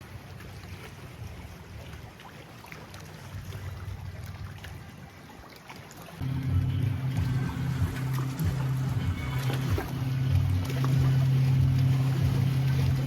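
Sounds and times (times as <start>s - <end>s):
small water splashes: 0.0s - 13.0s
water lapping and trickling: 0.0s - 13.0s
low rumble: 6.2s - 13.0s
steady hum: 6.2s - 13.0s.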